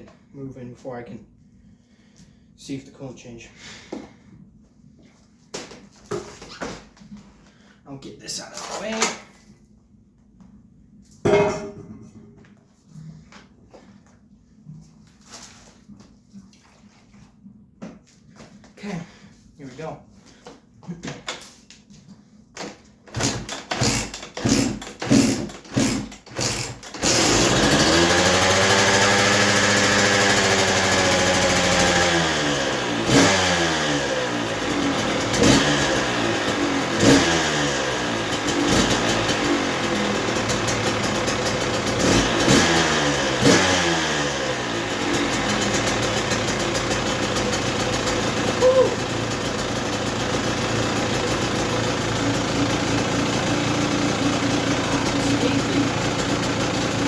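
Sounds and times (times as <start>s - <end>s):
two-stroke engine starting and revving: 23.1s - 57.0s.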